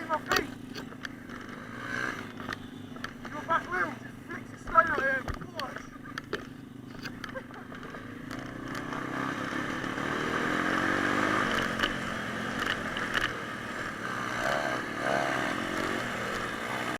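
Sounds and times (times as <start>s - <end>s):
small motorbike engine revving: 0.0s - 16.9s
sharp clicks: 0.2s - 3.8s, 4.6s - 9.0s, 11.4s - 13.4s.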